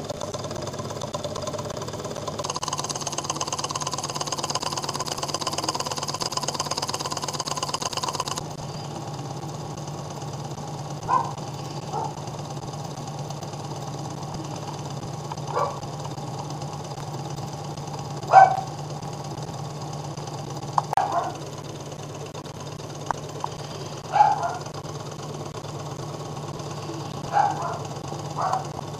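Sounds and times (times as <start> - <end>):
steady low hum: 0.0 - 18.7
stirling engine clattering: 0.0 - 28.9.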